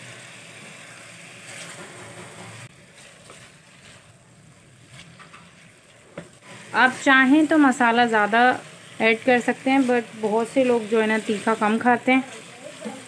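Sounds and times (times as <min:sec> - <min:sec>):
potatoes sizzling in oil: 0:00.0 - 0:13.0.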